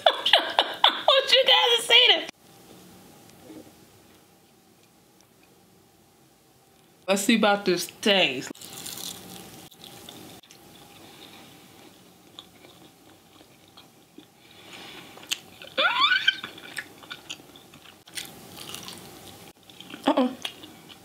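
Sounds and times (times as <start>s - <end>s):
crunchy chewing: 8.6s - 14.4s, 16.5s - 21.0s
person rising vocal sound: 15.8s - 16.5s.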